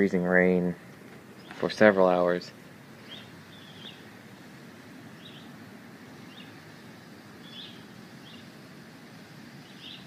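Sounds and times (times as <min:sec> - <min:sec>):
hiss of freezing rain: 0:00.0 - 0:10.0
small bird chirping: 0:01.3 - 0:01.8, 0:03.0 - 0:04.1, 0:05.1 - 0:05.6, 0:06.2 - 0:08.6, 0:09.6 - 0:10.0.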